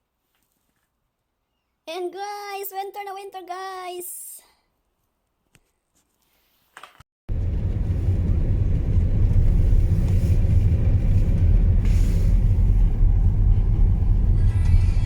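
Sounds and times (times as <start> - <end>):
loud low rumble: 7.3 - 15.0.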